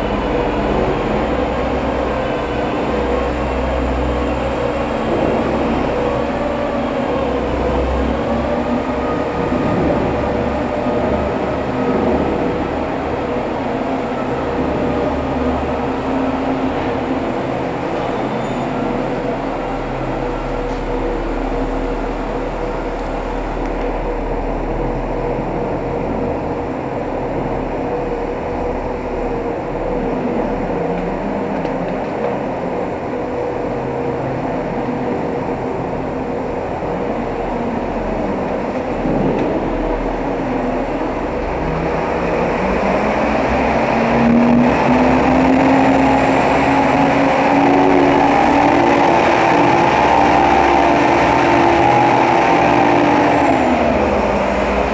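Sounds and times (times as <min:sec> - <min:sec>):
truck engine and rolling noise: 0:00.0 - 0:54.9.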